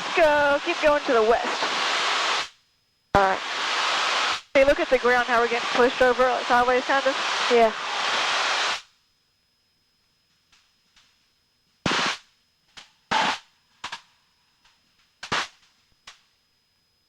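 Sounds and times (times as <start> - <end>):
intercom hiss bursts: 0.0 - 2.6, 3.2 - 8.9, 11.9 - 12.2.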